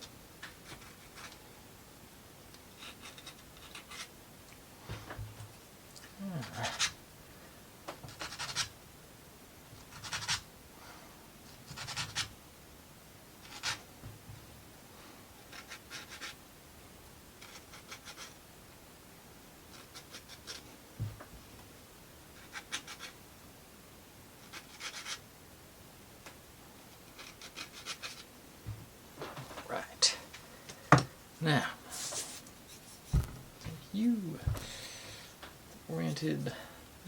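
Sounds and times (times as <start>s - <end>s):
soft wooden knock: 30.9s - 31.1s, 33.1s - 33.8s
scratchy scrapes of plywood parts: 31.9s - 33.8s.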